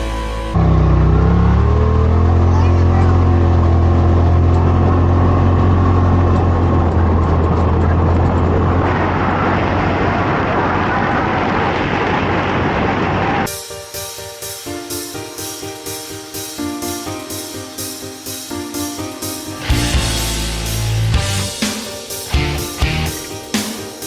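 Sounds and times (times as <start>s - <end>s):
utility vehicle engine droning: 0.0s - 13.5s.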